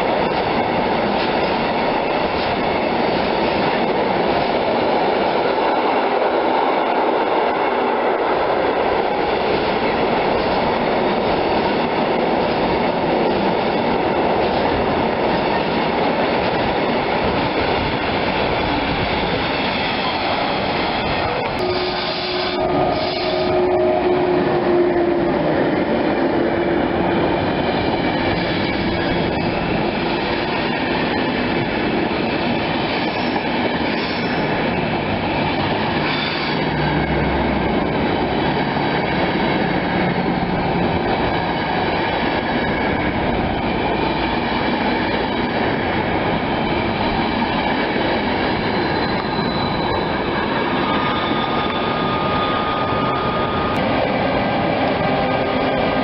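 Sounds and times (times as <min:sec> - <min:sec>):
train wheels on track: 0:00.0 - 0:56.0
wheels squealing: 0:48.4 - 0:53.8.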